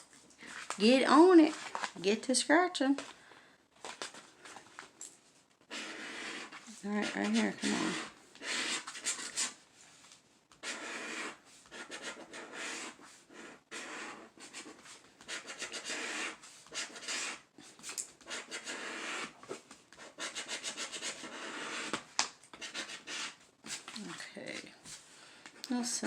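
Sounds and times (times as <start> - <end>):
scratching lottery ticket coating: 5.7 - 9.5, 20.0 - 22.0.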